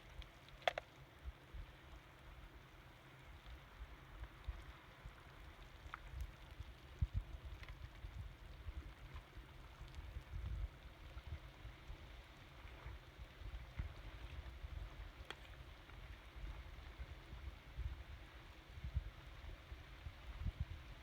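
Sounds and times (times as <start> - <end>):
faint clicks: 0.0 - 1.1, 3.4 - 10.6, 13.5 - 16.2
wind buffeting microphone: 6.9 - 12.1, 16.2 - 21.0.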